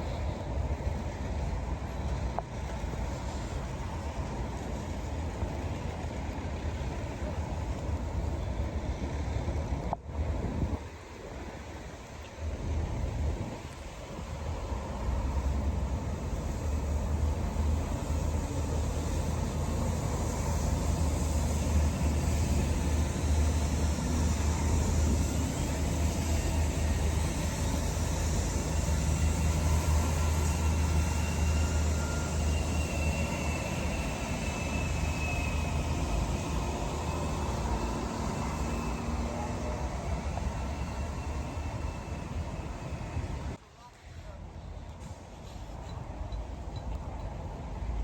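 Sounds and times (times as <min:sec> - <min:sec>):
street noise: 0:00.0 - 0:48.0
faint whine: 0:13.7 - 0:44.4
heavy vehicle engine rumbling: 0:14.4 - 0:43.6.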